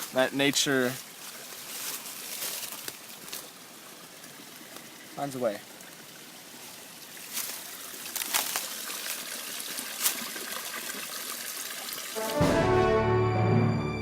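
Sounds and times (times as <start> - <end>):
running water: 0.0 - 12.4
music: 12.2 - 14.0.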